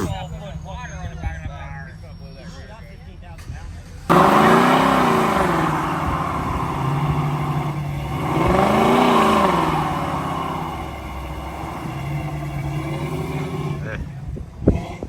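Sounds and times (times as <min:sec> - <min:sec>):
car engine revving: 0:03.2 - 0:15.0.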